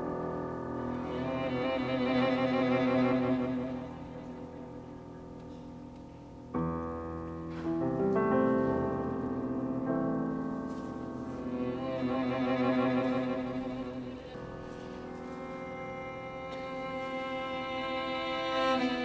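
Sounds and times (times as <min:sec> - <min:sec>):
piano chords: 0:00.0 - 0:19.0
violin and cello with vibrato: 0:00.8 - 0:04.9, 0:11.3 - 0:19.0.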